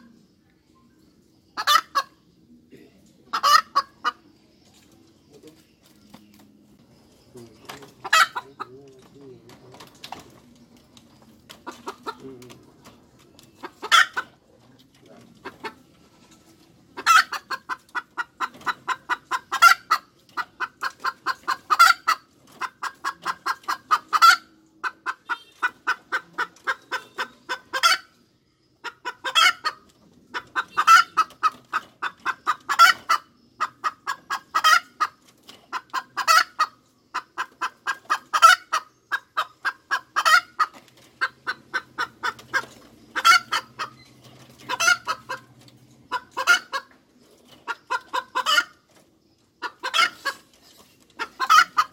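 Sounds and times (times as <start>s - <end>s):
hen cackling: 1.5s - 4.3s, 7.9s - 8.8s, 13.6s - 14.5s, 16.9s - 28.1s, 28.8s - 47.0s, 47.6s - 48.9s, 49.6s - 50.5s, 51.2s - 51.9s.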